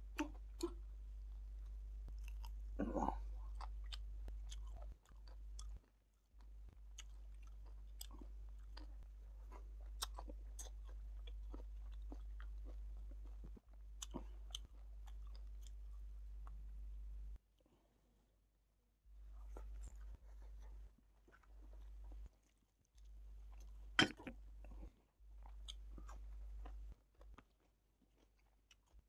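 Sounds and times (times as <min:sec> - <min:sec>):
steady low hum: 0:00.0 - 0:05.8, 0:06.4 - 0:17.4
person chewing wetly: 0:00.0 - 0:16.6, 0:19.4 - 0:29.0.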